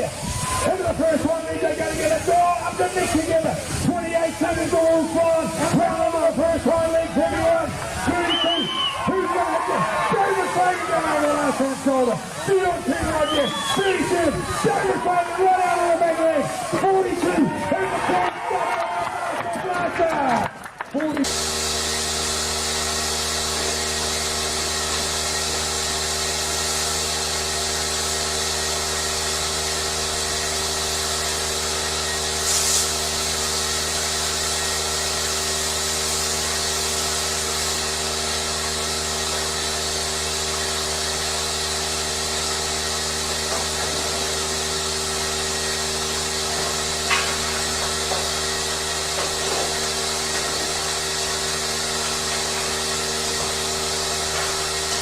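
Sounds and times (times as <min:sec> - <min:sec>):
machine humming and whirring: 0:21.2 - 0:55.0
brief hiss: 0:32.4 - 0:32.9.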